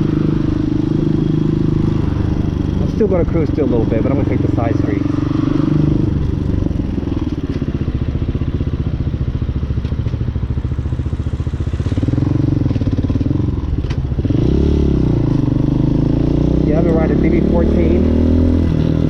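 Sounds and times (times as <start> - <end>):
dirt bike engine revving: 0.0 - 7.3, 14.2 - 19.0.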